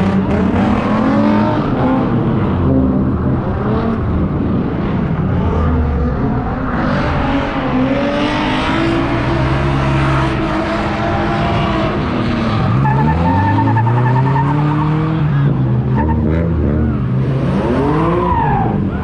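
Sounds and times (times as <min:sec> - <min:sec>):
car engine revving hard: 0:00.0 - 0:04.0
tyres squealing and skidding: 0:10.4 - 0:19.0.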